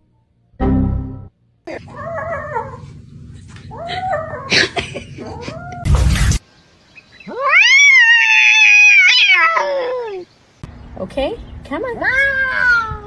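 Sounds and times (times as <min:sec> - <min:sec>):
cat meowing: 0:01.7 - 0:02.9, 0:07.3 - 0:10.2, 0:12.0 - 0:13.0
cat yowling: 0:01.7 - 0:03.0, 0:03.7 - 0:05.9, 0:07.3 - 0:10.3, 0:12.0 - 0:13.0.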